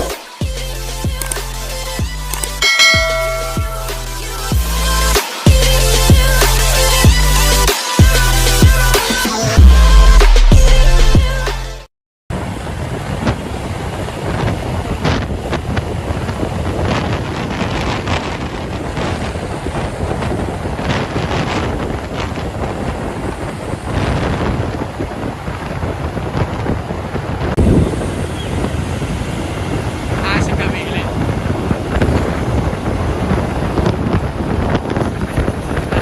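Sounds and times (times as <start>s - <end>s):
wind on microphone: 12.3s - 36.0s
highway traffic noise: 12.4s - 36.0s.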